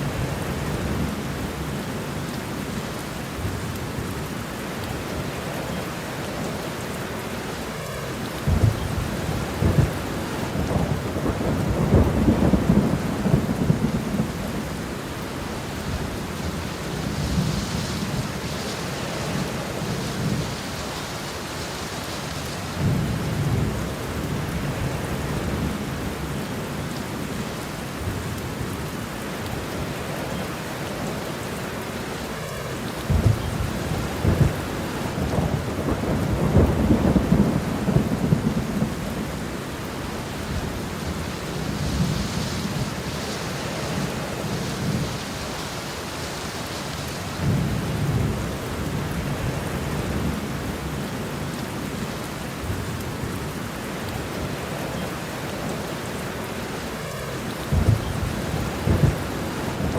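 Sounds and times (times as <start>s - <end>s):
steady rain falling: 0.0s - 59.9s
rolling thunder: 8.4s - 15.0s, 33.0s - 45.4s, 57.7s - 59.9s.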